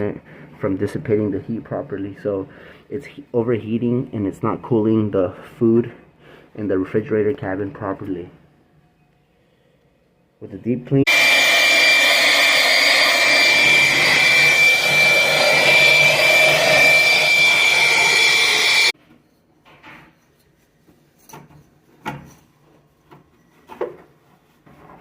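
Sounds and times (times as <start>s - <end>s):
cleaning tool motor whining: 11.1s - 19.0s.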